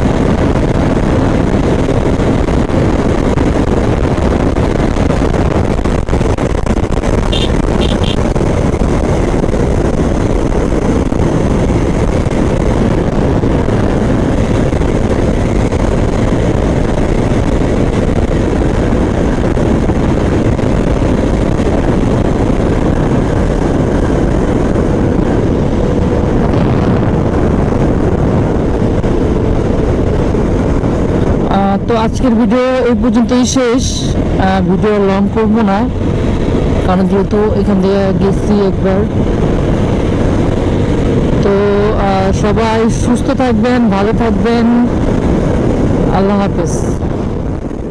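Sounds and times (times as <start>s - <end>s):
motorcycle engine: 0.0s - 47.9s
motorcycle road noise: 0.0s - 47.9s
wind rush: 0.0s - 47.9s
short high beeps: 7.3s - 8.2s.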